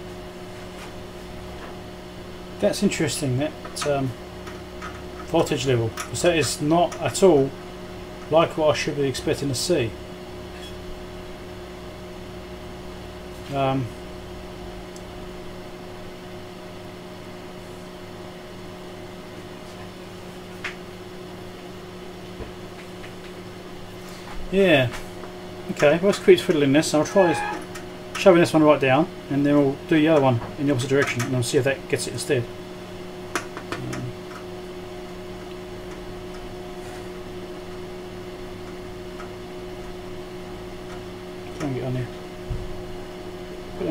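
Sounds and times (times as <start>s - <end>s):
test equipment hum and hiss: 0.0s - 43.9s
steady electronic tones: 27.0s - 27.8s.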